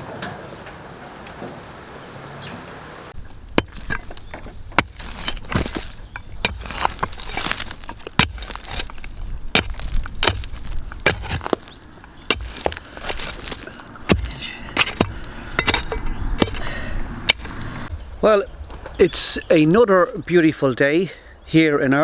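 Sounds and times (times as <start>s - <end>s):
tools scraping on rubble: 3.2s - 17.9s
metal tools striking concrete: 3.5s - 4.2s, 4.8s - 17.6s.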